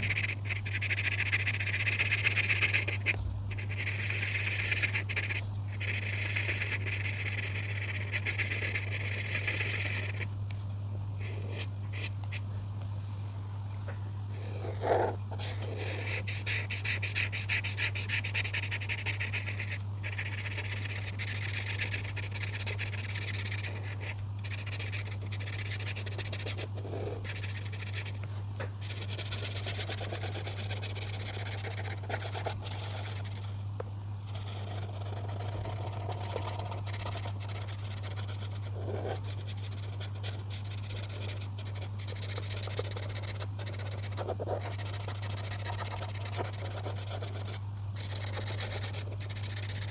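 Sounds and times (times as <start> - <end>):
steady low hum: 0.0 - 49.9
colouring strokes on paper: 14.4 - 28.2, 28.8 - 33.6, 34.3 - 49.9.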